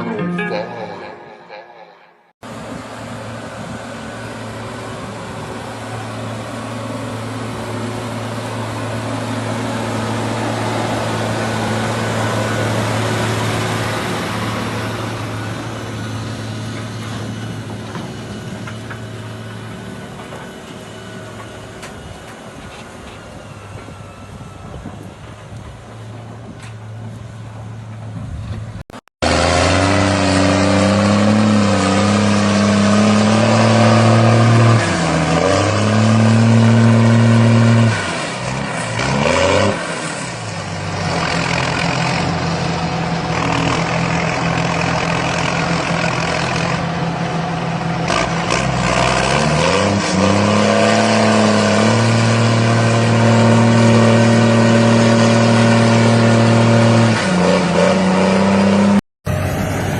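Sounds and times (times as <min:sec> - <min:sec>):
tractor engine running: 0:02.4 - 0:39.1, 0:39.8 - 0:49.6.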